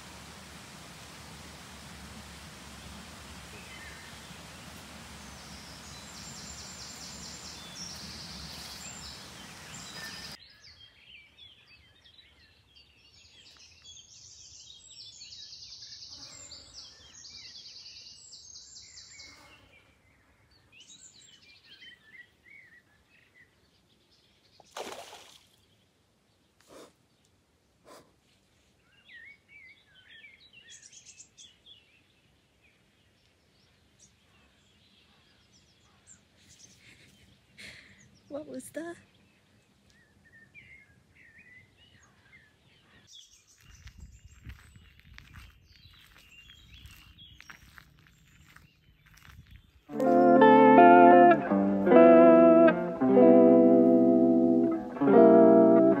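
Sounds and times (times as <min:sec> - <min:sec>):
steady rushing noise: 0:00.0 - 0:10.4
songbirds chirping and trilling: 0:00.2 - 0:50.5.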